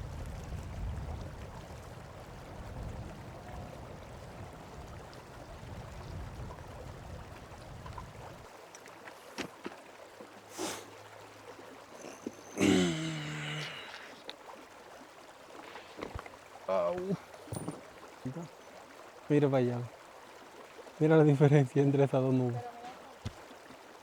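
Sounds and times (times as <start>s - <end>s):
river water running: 0.0s - 24.0s.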